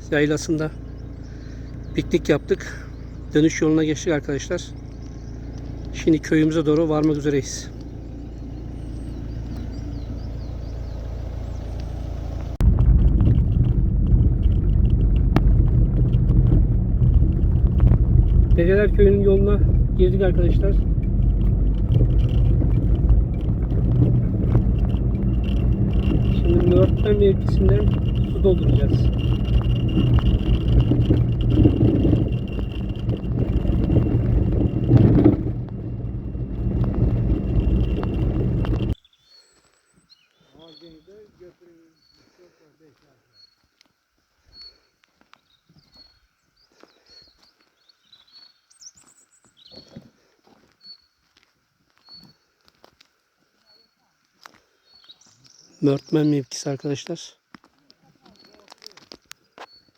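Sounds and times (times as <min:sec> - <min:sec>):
vehicle engine and road rumble: 0:00.0 - 0:39.0
faint bird chirps: 0:00.1 - 0:12.3, 0:38.9 - 0:42.6, 0:43.2 - 0:50.0, 0:50.7 - 0:51.3, 0:52.0 - 0:52.6, 0:53.5 - 0:56.5
rattles: 0:11.4 - 0:39.0.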